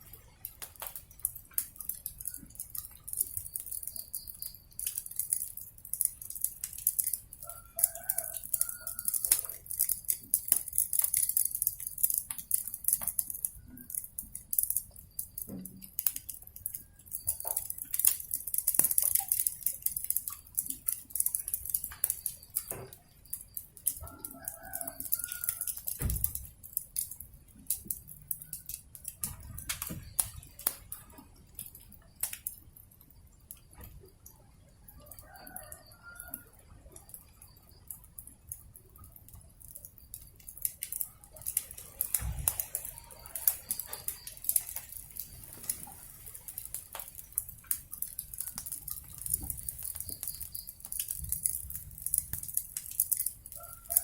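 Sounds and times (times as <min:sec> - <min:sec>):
wood fire crackling and popping: 0:00.0 - 0:54.0
rooster crowing: 0:07.4 - 0:09.5, 0:24.0 - 0:25.9, 0:34.9 - 0:36.6, 0:53.5 - 0:54.0.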